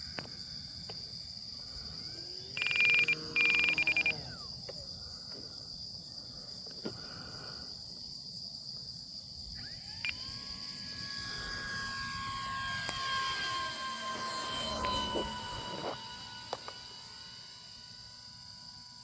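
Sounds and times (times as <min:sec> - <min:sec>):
model plane motor whining: 0:00.0 - 0:05.5, 0:09.4 - 0:19.0
high insect chirping: 0:00.0 - 0:19.0.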